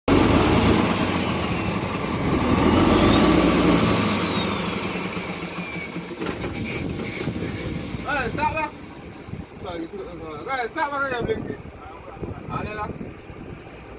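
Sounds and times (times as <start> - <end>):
truck engine rumble: 0.0 - 13.9
high-pitched whine: 0.1 - 6.0.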